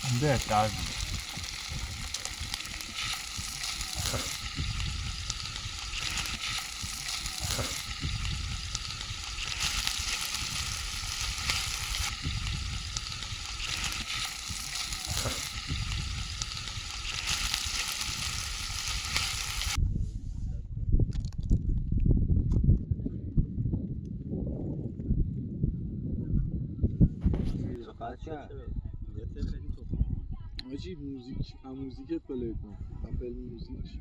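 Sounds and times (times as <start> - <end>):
campfire crackling: 0.0 - 19.8.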